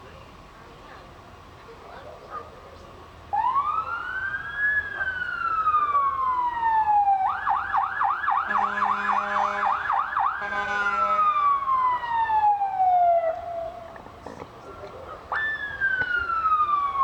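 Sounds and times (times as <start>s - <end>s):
emergency vehicle siren: 3.3s - 17.0s
low horn blast: 8.5s - 11.4s.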